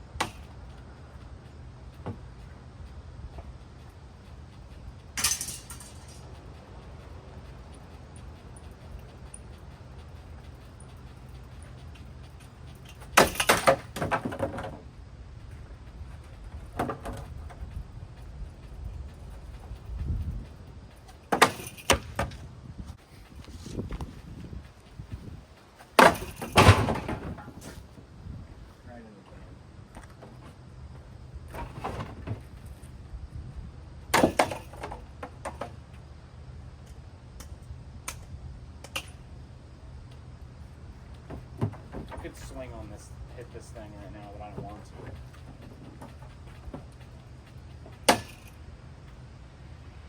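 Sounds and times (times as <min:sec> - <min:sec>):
ceiling fan parts rattling: 0:00.0 - 0:29.1, 0:40.3 - 0:50.0.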